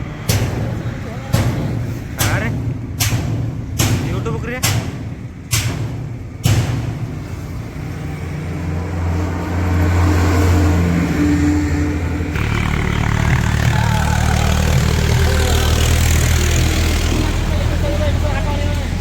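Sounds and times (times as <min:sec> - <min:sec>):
tractor engine running: 0:12.2 - 0:19.0.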